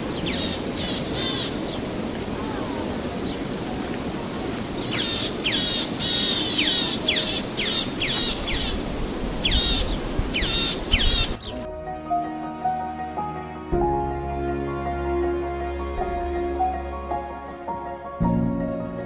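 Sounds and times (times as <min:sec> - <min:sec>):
bird calls: 0:00.0 - 0:02.0, 0:02.6 - 0:11.6
outdoor background noise: 0:00.0 - 0:11.5.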